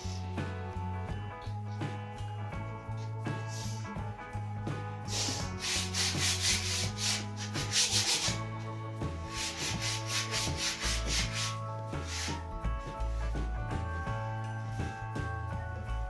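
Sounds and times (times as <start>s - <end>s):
background music: 0.0s - 16.0s
sandpaper rubbing on wood: 5.1s - 8.4s, 9.3s - 12.4s.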